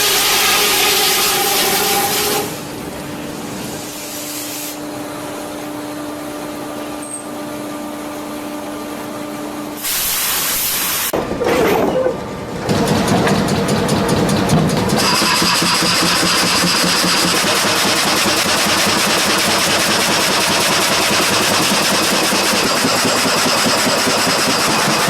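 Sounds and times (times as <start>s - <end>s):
loud hiss: 9.8s - 11.2s
heavy machinery humming: 11.1s - 25.0s
machine noise with fast beat: 12.7s - 25.0s.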